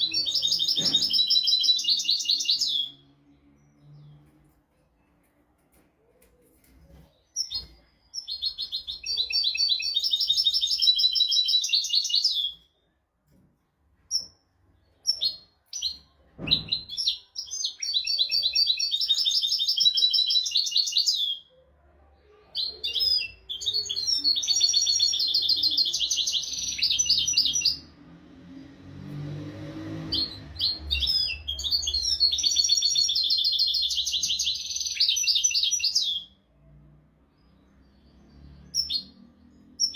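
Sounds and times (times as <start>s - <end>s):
low thump: 16.4s - 16.9s.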